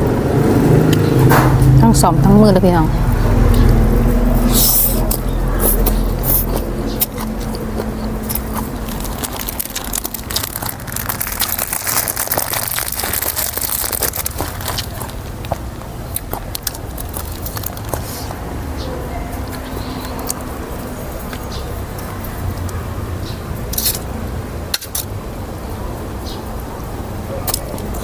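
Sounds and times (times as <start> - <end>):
person chewing and crunching food: 3.4 - 18.3.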